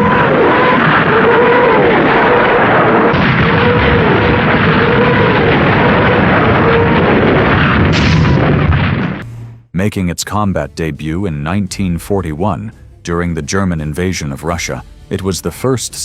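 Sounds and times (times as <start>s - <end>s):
howling rocket tone: 0.0s - 9.7s
rockets roaring: 0.0s - 9.7s.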